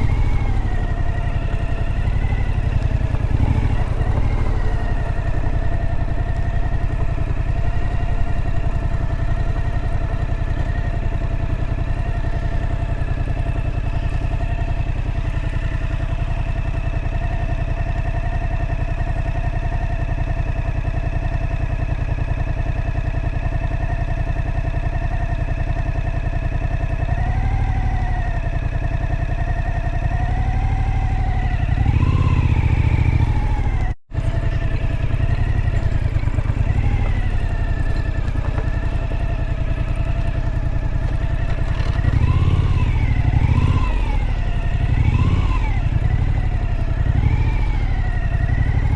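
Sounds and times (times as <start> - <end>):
wind and road noise: 0.0 - 17.4, 30.9 - 48.9
motorcycle engine cruising: 0.0 - 48.9.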